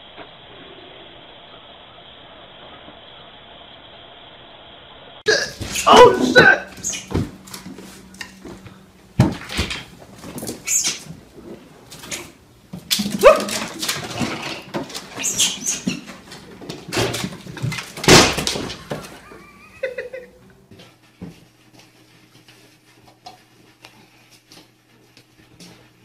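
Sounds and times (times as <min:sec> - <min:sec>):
knocks and thumps: 0:05.6 - 0:19.2.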